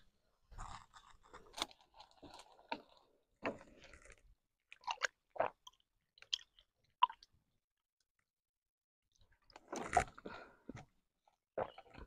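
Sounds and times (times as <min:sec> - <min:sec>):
person gulping water: 0:02.2 - 0:07.4, 0:11.5 - 0:12.0.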